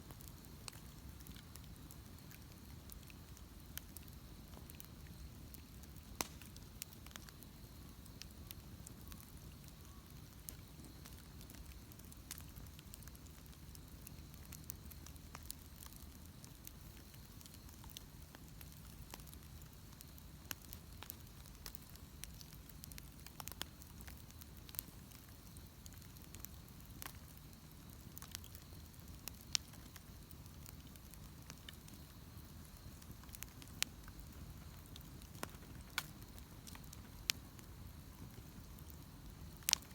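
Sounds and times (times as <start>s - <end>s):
bonfire crackling: 0.0s - 39.9s.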